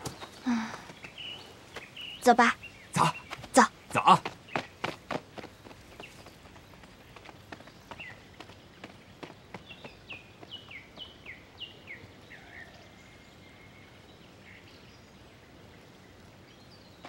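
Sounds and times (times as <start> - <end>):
light running footsteps: 0.0 - 11.6.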